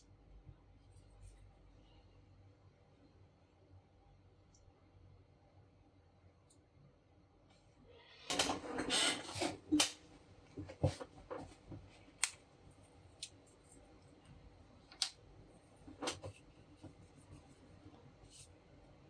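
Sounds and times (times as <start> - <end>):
scraping and rubbing of parts: 8.4 - 9.7.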